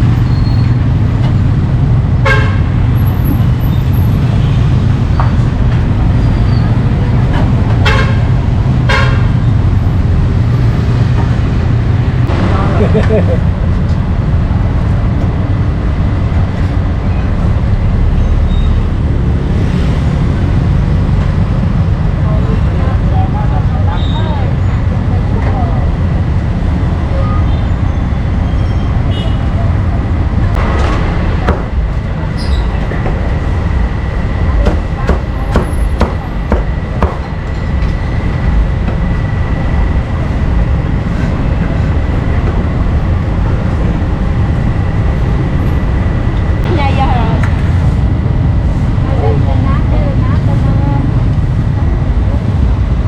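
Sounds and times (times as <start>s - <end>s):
street traffic rumble: 0.0s - 53.0s
sharp knocks: 30.7s - 31.8s, 34.6s - 37.3s.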